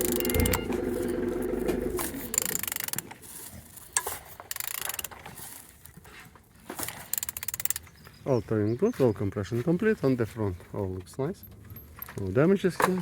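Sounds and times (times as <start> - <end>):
ratchet wrench clicking: 0.0 - 0.7, 2.0 - 3.1, 4.0 - 5.2, 6.9 - 7.8.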